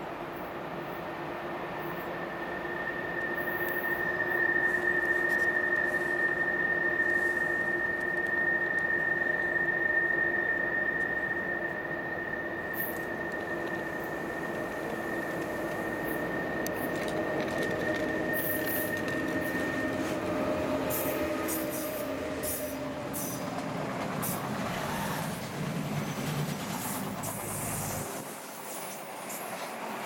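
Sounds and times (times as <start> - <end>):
electric locomotive passing: 0.0 - 30.0
steady high tones: 1.5 - 23.5
wagons rolling past: 12.5 - 28.1.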